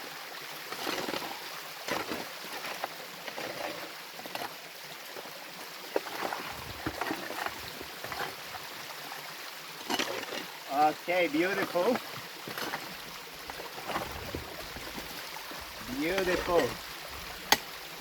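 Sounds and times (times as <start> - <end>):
stream running over rock: 0.0 - 18.0
stones knocking and scraping: 6.0 - 8.6, 9.9 - 10.5, 11.6 - 17.9.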